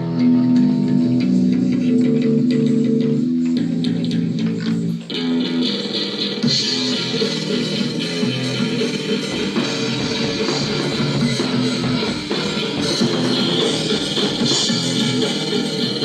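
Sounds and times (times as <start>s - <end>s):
rock music with guitars and drums: 0.0s - 16.0s.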